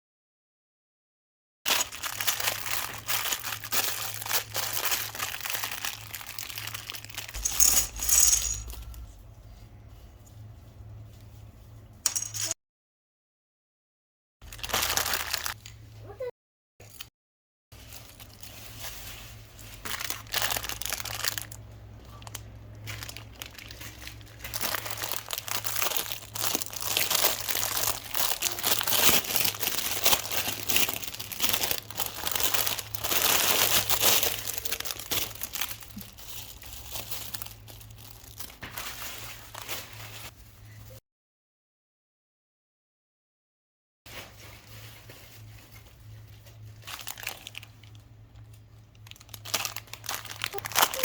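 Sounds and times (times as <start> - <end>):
plastic packaging crinkling: 1.7 - 9.2, 14.4 - 15.7, 17.8 - 40.3, 44.1 - 51.0
low hum: 6.2 - 12.5.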